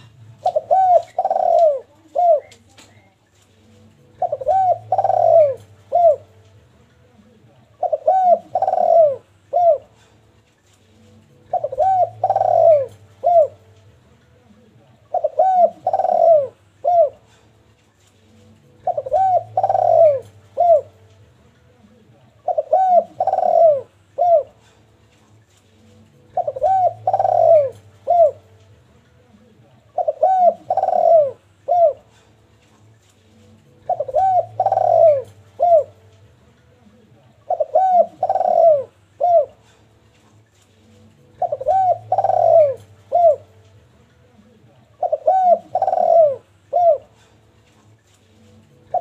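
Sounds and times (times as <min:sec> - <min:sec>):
dove cooing: 0:00.0 - 0:03.1, 0:04.0 - 0:06.4, 0:07.7 - 0:10.2, 0:11.3 - 0:13.8, 0:15.0 - 0:17.6, 0:18.5 - 0:21.0, 0:21.8 - 0:24.8, 0:25.9 - 0:28.6, 0:29.4 - 0:32.5, 0:33.6 - 0:36.1, 0:36.9 - 0:39.9, 0:41.2 - 0:43.6, 0:44.4 - 0:47.4, 0:48.6 - 0:49.0.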